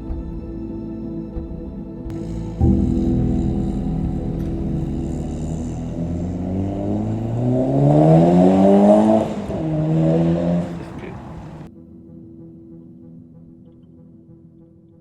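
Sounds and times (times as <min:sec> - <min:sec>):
car engine accelerating: 0:02.1 - 0:11.7.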